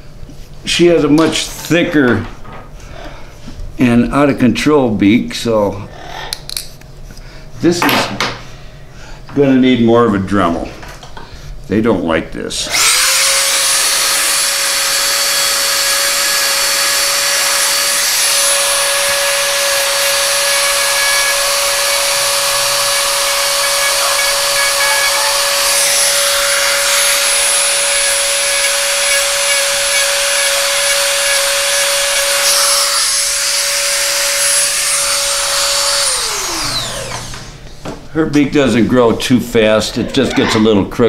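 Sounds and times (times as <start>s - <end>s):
rotary tool grinding beak: 12.7s - 37.3s.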